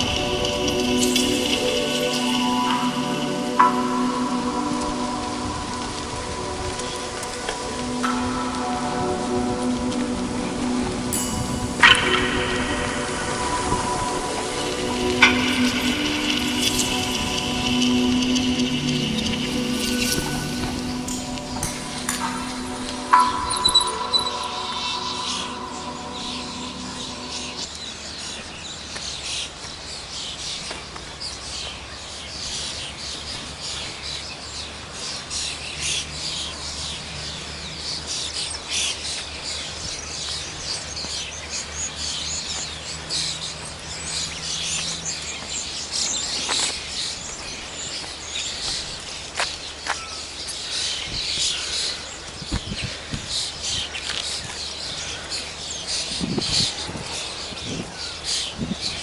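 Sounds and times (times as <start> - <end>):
steady hiss: 0.0 - 27.7
low hum: 0.0 - 27.9
songbirds chirping: 0.0 - 59.0.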